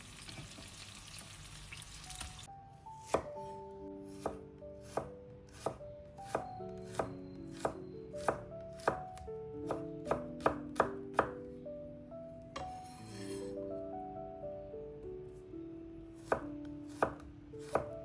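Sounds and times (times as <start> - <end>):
background music with held notes: 2.0 - 18.0
knife chopping on cutting board: 3.0 - 3.5, 4.2 - 9.1, 9.7 - 11.4, 16.2 - 17.9.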